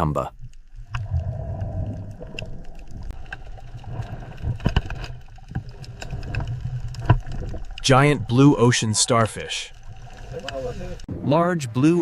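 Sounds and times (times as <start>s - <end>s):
small clicks and ticks: 0.4s - 11.1s.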